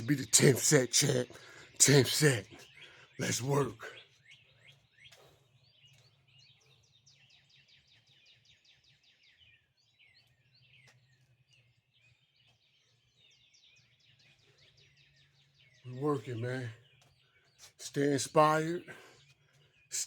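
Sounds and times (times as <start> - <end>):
faint birdsong chirps: 0.0 - 20.0.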